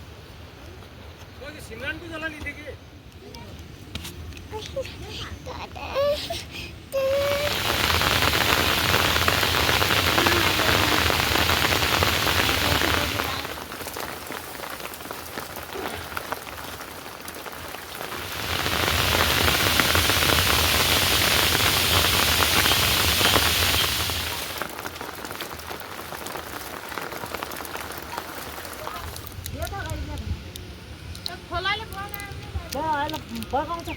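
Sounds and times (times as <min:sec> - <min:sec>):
heavy rain falling: 0:04.5 - 0:30.2.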